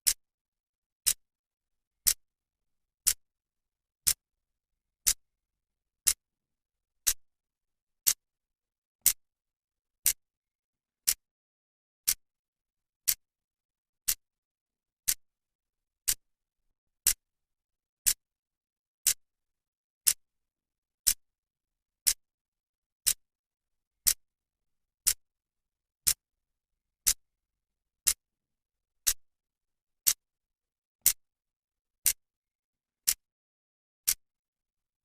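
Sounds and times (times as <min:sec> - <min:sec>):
clock ticking: 0:16.0 - 0:16.2.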